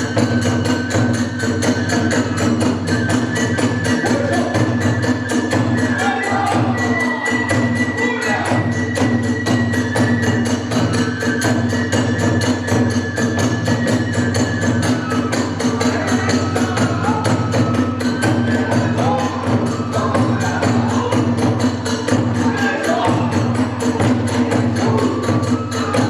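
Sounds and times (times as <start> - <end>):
bamboo flute: 0.0 - 26.0
drum beat: 0.0 - 26.0
hand cymbals: 0.0 - 26.0.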